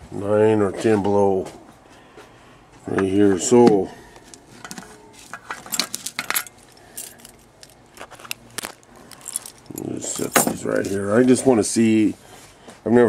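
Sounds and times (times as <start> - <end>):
small items clicking and clinking: 4.6 - 11.0.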